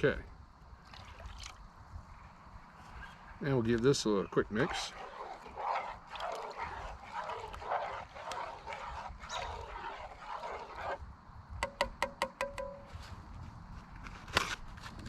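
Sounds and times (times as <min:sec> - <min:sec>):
spoon scraping in a pot: 0:04.2 - 0:11.0
sharp metallic taps: 0:11.6 - 0:13.0.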